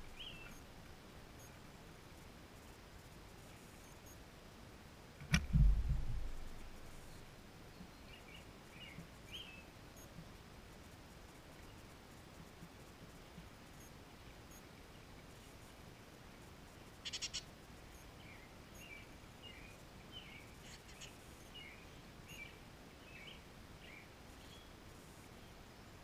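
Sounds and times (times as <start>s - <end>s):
faint bird chirps: 0.0s - 0.7s, 6.4s - 10.1s, 16.9s - 25.6s
sharp clicks: 5.2s - 6.7s.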